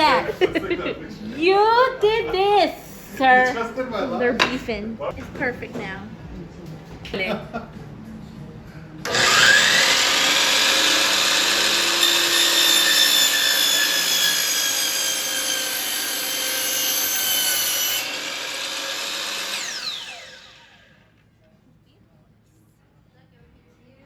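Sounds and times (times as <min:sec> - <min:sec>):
electric jigsaw cutting wood: 0:09.0 - 0:21.0.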